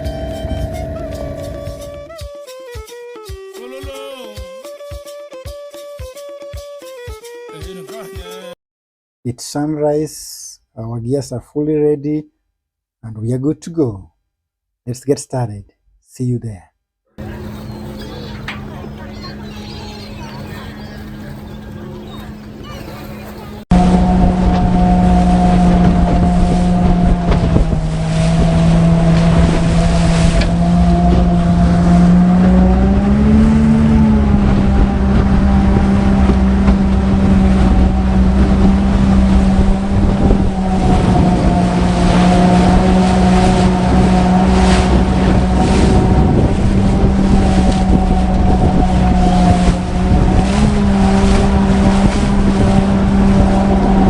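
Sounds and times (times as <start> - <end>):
water rushing past hull: 0.0 - 2.1, 17.2 - 54.0
motorboat engine running: 0.0 - 2.2, 17.2 - 54.0
wind buffeting microphone: 17.2 - 54.0.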